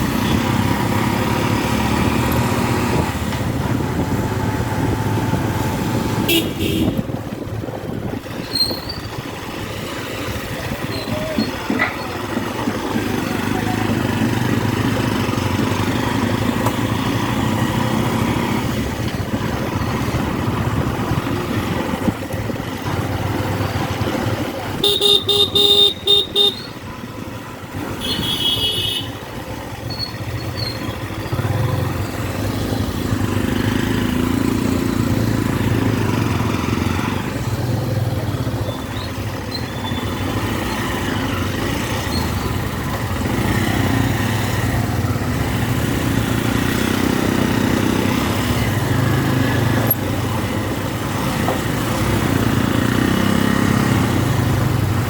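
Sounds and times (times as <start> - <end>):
motorcycle engine running: 0.0 - 55.0
vehicle horn toots: 6.3 - 7.1, 24.8 - 26.7, 28.0 - 29.2.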